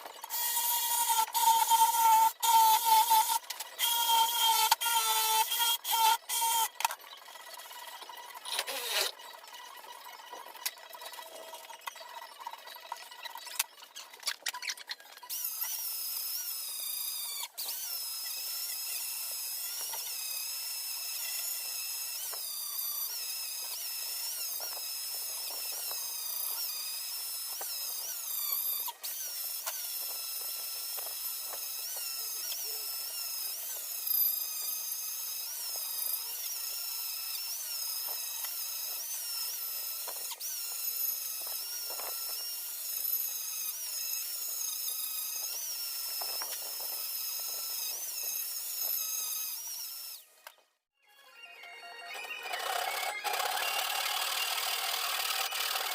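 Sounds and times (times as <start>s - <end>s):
power tool whining: 0.0s - 50.9s, 51.6s - 55.9s.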